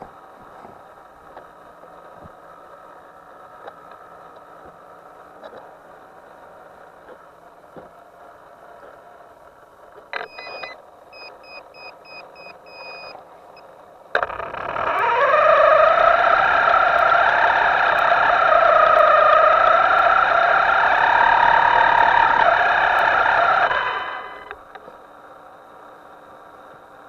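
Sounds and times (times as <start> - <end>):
short electronic beeps: 10.2 - 13.2, 21.7 - 24.6
loud rising whine: 14.2 - 24.7
click: 14.2 - 25.0.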